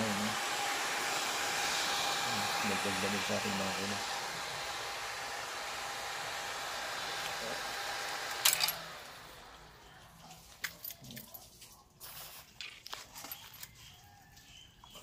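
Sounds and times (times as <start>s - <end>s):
small electric fan whining: 0.0s - 10.6s.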